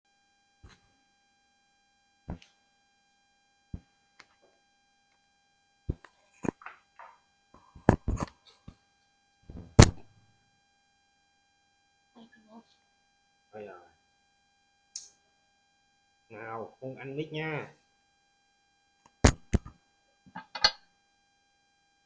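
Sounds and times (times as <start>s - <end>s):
faint steady high tone: 10.1s - 22.0s.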